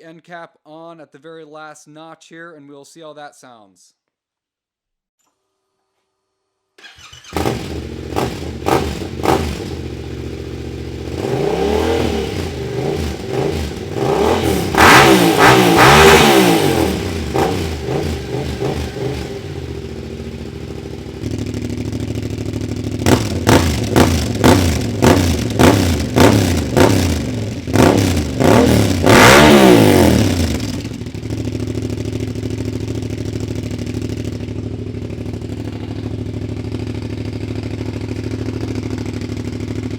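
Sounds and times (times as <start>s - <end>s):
motorcycle engine revving and idling: 6.9s - 39.9s.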